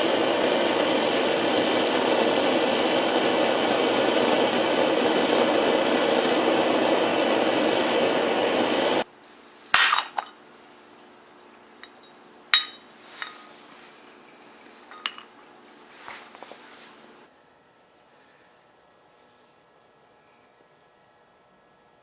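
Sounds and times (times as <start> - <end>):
loud steady rushing noise: 0.0 - 9.0
metallic clinks and taps: 11.8 - 13.5.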